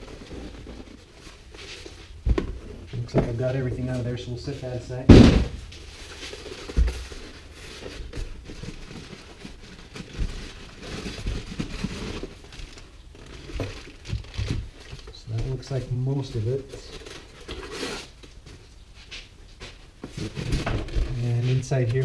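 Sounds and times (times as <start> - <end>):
dull thump: 5.1 - 5.7
packing material rustling: 5.6 - 18.4.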